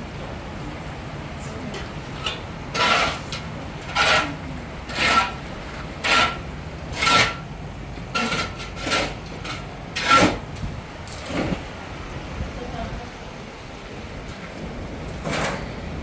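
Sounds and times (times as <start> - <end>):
harsh scraping strokes: 2.2 - 7.4.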